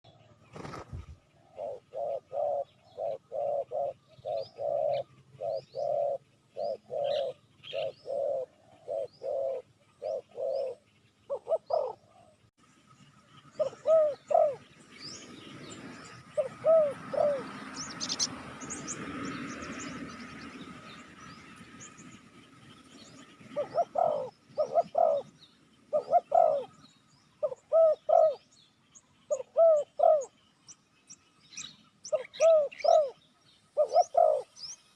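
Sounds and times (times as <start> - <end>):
small birds chirping: 0.0 - 34.9
dove cooing: 0.6 - 12.4, 13.6 - 14.7, 15.8 - 18.3, 23.4 - 28.5, 29.3 - 30.4, 32.1 - 33.2, 33.8 - 34.6.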